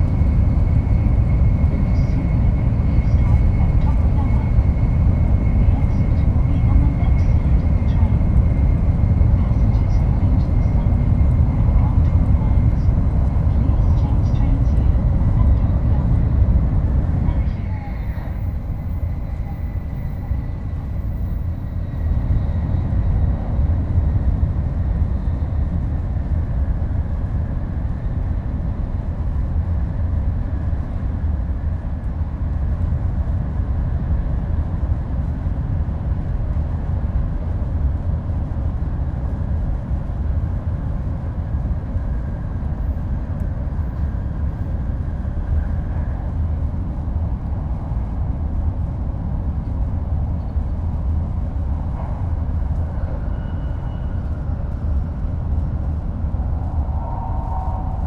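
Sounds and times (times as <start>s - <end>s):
train running low rumble: 0.0s - 58.0s.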